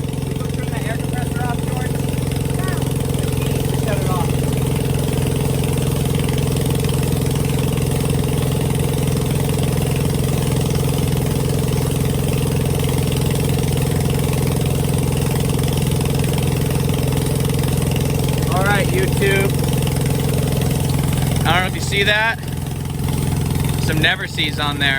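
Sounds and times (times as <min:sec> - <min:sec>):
engine idling: 0:00.0 - 0:24.9.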